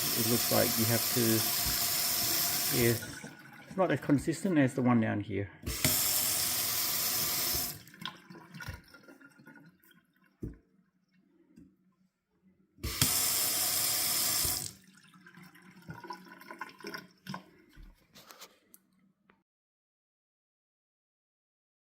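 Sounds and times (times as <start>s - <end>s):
tap water splashing into sink: 0.0s - 4.3s, 5.6s - 10.7s, 12.8s - 17.9s.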